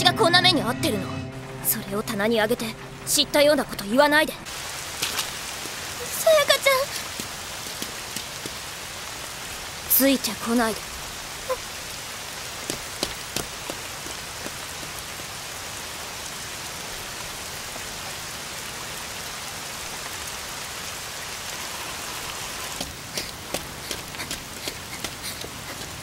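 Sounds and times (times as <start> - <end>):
rain on a hard surface: 1.4 - 26.0
drop splashes: 4.5 - 8.7.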